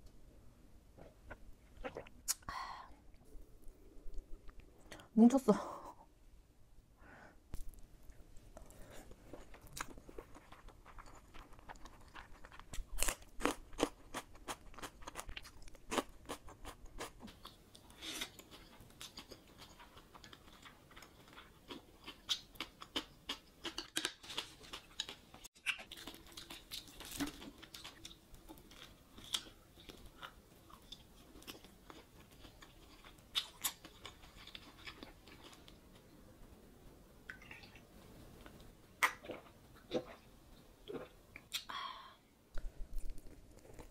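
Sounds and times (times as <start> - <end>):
wet mouth clicks: 1.8 - 2.5
chewing and crunching food: 7.6 - 36.1, 42.6 - 43.9.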